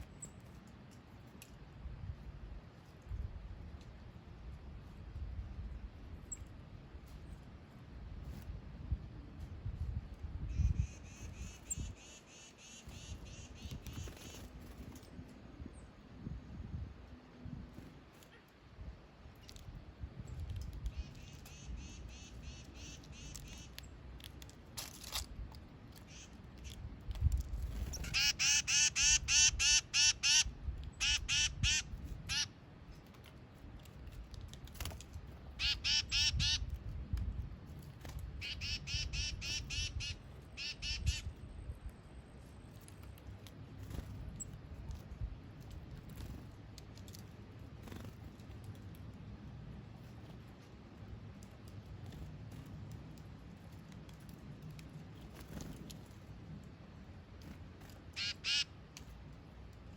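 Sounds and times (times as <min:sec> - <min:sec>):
bird repeated duck-like calls: 0:10.6 - 0:14.4, 0:21.0 - 0:23.8, 0:27.9 - 0:32.5, 0:35.6 - 0:36.6, 0:38.4 - 0:41.3, 0:58.1 - 0:58.7.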